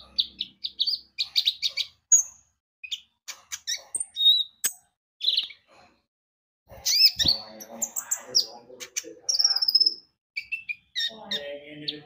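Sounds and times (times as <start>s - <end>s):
sunbird singing high chirps: 9.2s - 12.0s.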